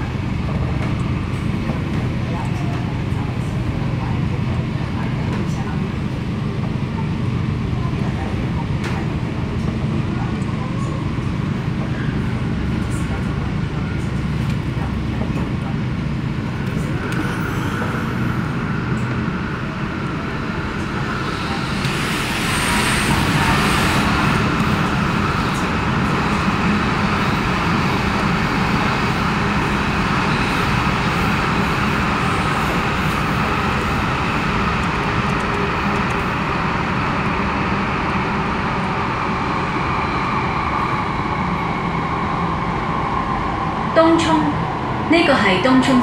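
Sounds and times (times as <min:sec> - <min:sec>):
train wheels rumbling on rail: 0:00.0 - 0:46.0
train whine: 0:00.0 - 0:46.0.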